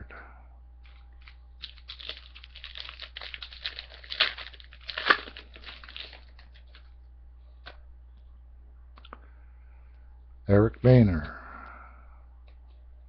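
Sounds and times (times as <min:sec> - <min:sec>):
wrapper tearing and crinkling: 0:00.8 - 0:06.9.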